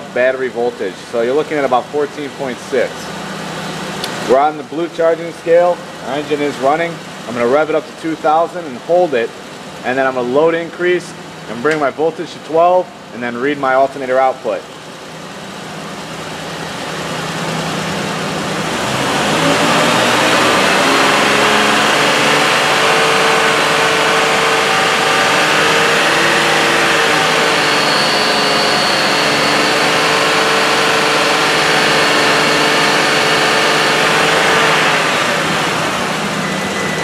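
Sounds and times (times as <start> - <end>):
car engine revving then steady: 15.8 - 37.0.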